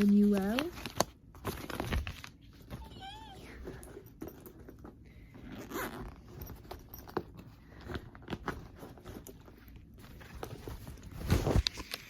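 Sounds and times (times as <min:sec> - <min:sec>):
items clicking and knocking: 0:03.6 - 0:05.1.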